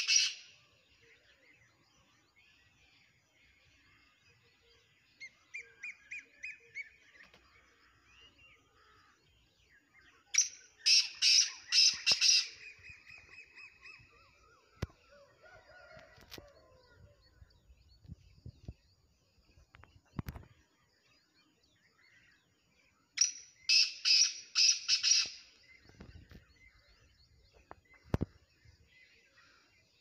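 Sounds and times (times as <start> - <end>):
short bird chirps: 21.8 - 27.0.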